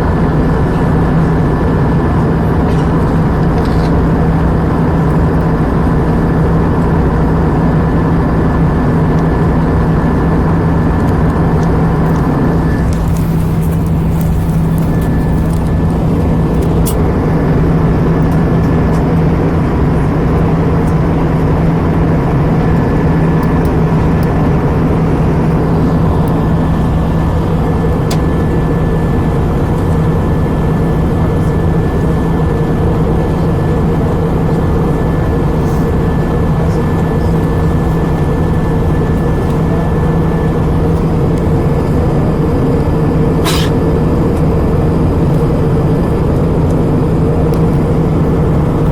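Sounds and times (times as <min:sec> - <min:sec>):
airliner cabin engine roar: 0:00.0 - 0:48.9
low hum: 0:00.0 - 0:48.9
faint high whine: 0:11.4 - 0:48.9.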